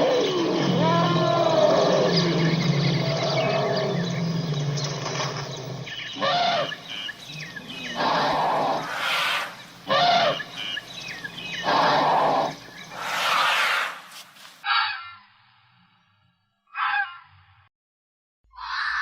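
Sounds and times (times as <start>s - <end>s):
low steady animal call: 0.0s - 5.1s, 5.9s - 15.2s
short loud animal calls: 8.0s - 10.5s, 11.6s - 15.1s.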